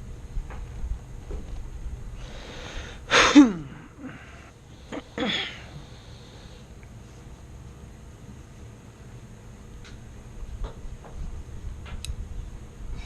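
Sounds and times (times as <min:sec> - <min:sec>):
person inhaling noisily: 0:02.2 - 0:06.7
person sneezing: 0:03.1 - 0:05.7.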